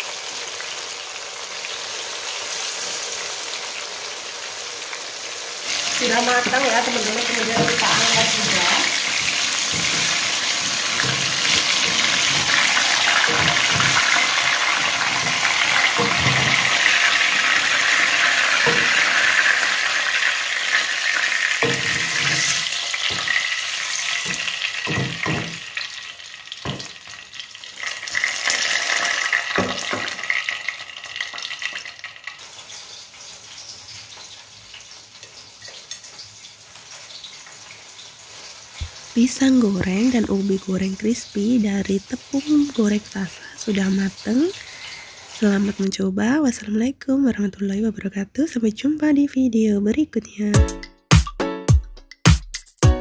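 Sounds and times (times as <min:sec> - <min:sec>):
fritters sizzling in hot oil: 0:00.0 - 0:46.4
metal strainer knocking on wok: 0:24.3 - 0:25.7.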